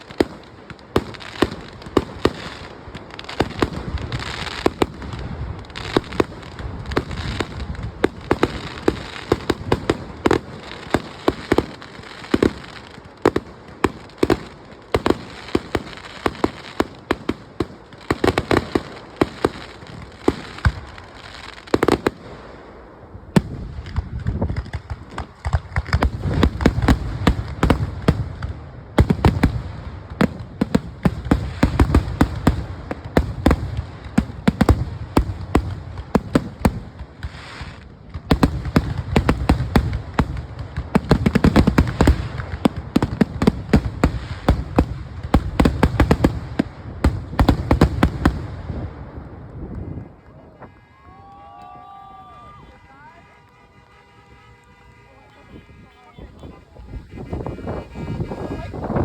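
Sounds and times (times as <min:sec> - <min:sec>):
fireworks bangs and pops: 0:00.0 - 0:59.0.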